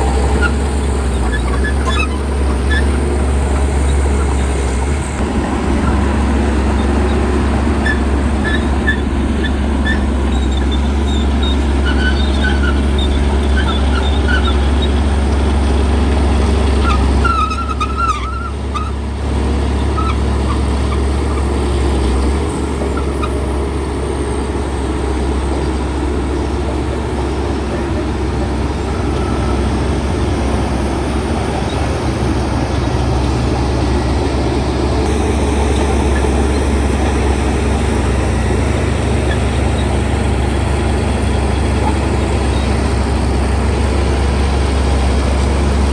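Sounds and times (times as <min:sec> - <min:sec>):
bulldozer diesel engine droning: 0:00.0 - 0:45.9
short high squeaks: 0:01.2 - 0:03.0, 0:09.9 - 0:15.0, 0:16.8 - 0:19.0.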